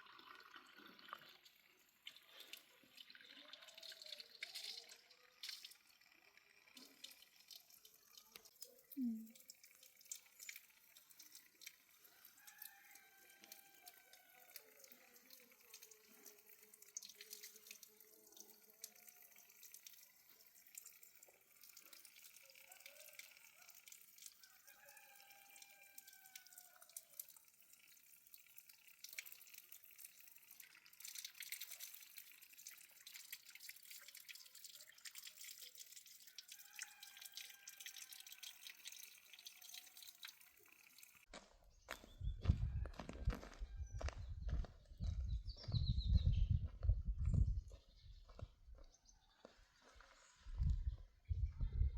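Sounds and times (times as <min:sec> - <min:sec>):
water dripping and trickling: 0:00.0 - 0:45.7, 0:46.6 - 0:51.0
small ticks: 0:01.1 - 0:31.9.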